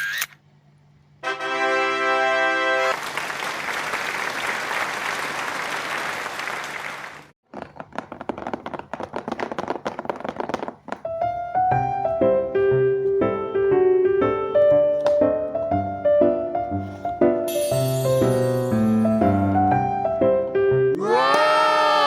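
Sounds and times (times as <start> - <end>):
audience applause: 2.9 - 7.3
held musical note: 11.6 - 20.9.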